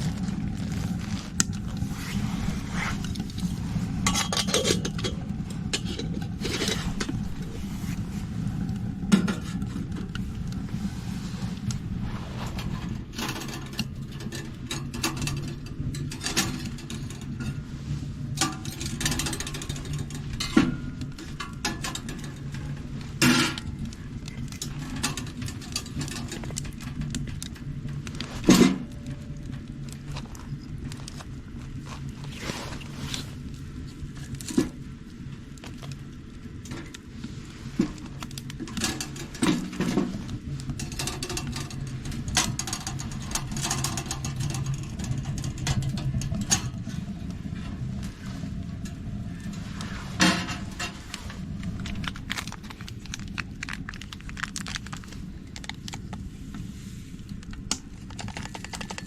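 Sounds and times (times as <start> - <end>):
steady low hum: 0.0 - 59.0
clicks and knocks of handled items: 4.1 - 7.6, 18.4 - 33.2, 37.8 - 47.0, 57.3 - 59.0.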